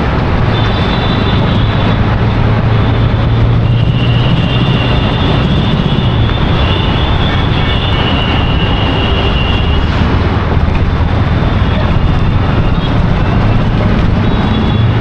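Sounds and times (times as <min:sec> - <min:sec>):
vehicle engine hum: 0:00.0 - 0:15.0
high whistling tones: 0:03.5 - 0:09.9.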